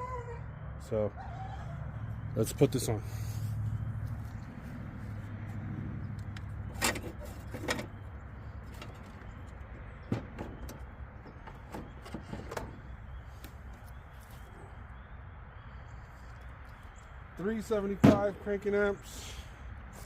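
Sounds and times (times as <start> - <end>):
parts clicking and knocking: 6.2 - 12.9.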